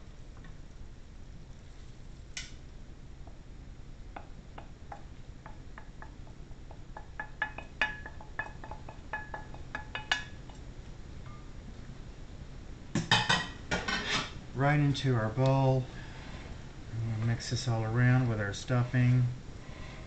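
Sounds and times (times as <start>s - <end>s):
utensil clinking against cookware: 7.0s - 10.6s
cookware clatter: 13.0s - 14.4s.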